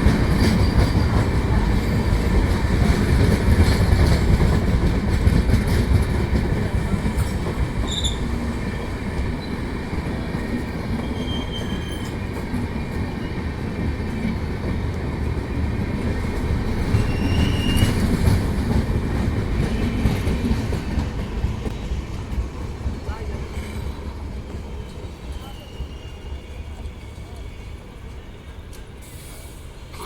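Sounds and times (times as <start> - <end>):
train wheel squeals: 0.0 - 4.5, 7.1 - 8.6, 9.3 - 9.8, 10.4 - 14.3, 16.7 - 18.5, 23.5 - 30.0
train wheels rumbling on rails: 0.0 - 30.0.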